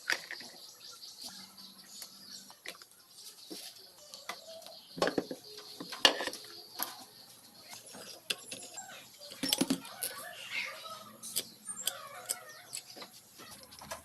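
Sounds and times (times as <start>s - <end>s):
tools and engine parts clicking: 0.0s - 0.6s, 5.0s - 10.5s, 11.2s - 14.0s.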